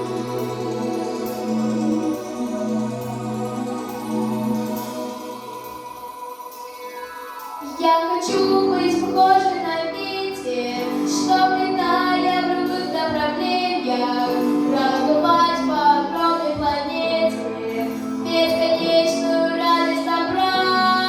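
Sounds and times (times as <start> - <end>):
instrumental backing music: 0.0 - 21.0
girl singing: 7.6 - 21.0.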